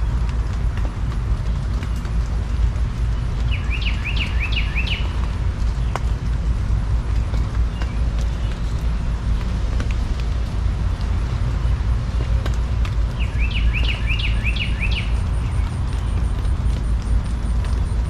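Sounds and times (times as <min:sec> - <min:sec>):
bird chirping: 0:03.4 - 0:05.2, 0:13.2 - 0:16.2.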